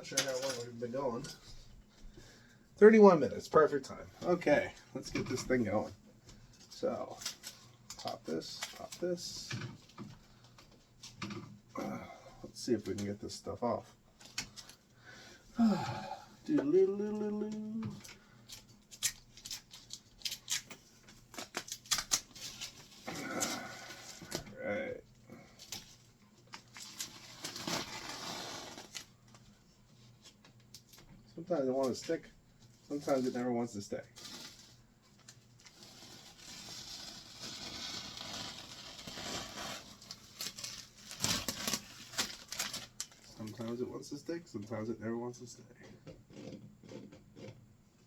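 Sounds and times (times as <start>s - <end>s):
tape peeling with crackling snaps: 17.1s - 24.5s, 25.6s - 29.6s, 34.2s - 43.8s.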